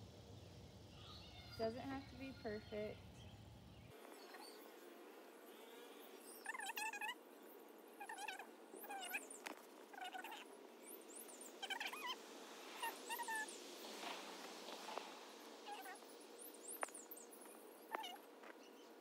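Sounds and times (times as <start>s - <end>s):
faint high bird chirps: 0.8s - 4.8s, 5.4s - 12.2s, 15.6s - 19.0s
bird repeating pitched calls: 6.4s - 7.2s, 8.0s - 9.3s, 9.9s - 10.5s.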